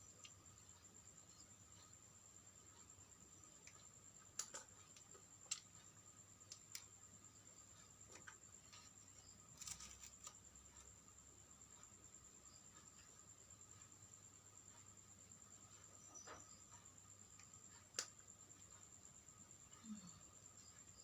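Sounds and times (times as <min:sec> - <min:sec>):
faint high-pitched whine: 0:00.0 - 0:21.0
small parts clicking and tapping: 0:02.7 - 0:11.1, 0:15.7 - 0:18.9.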